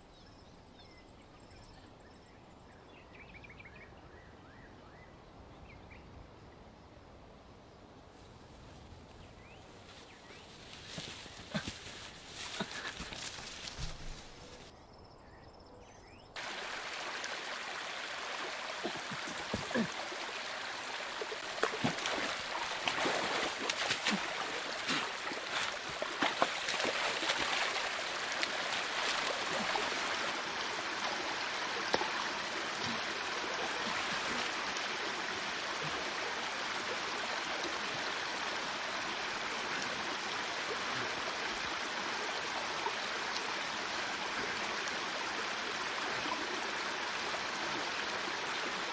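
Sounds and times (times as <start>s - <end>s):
rushing water: 16.4s - 48.9s.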